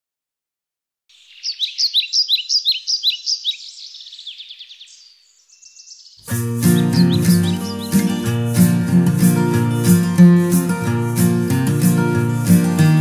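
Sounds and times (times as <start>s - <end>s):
songbird singing: 1.1s - 11.5s.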